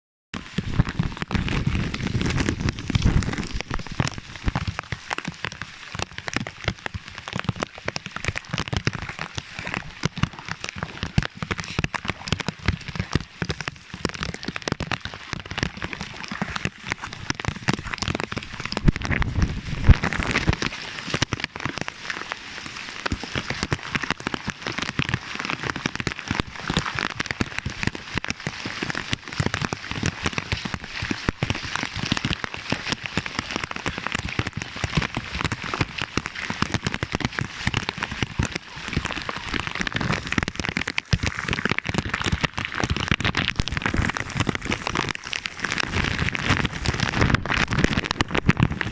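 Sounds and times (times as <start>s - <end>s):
heavy rain patter: 0.4s - 48.9s.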